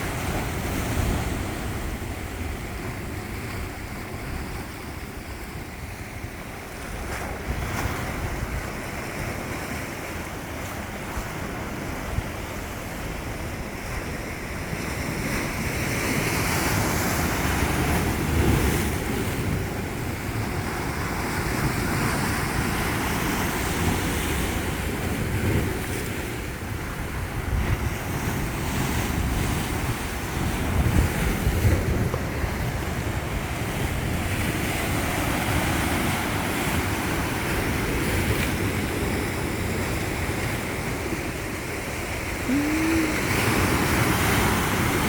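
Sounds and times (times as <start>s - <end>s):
sea waves washing on shore: 0.0s - 45.0s
wind buffeting microphone: 16.7s - 41.6s.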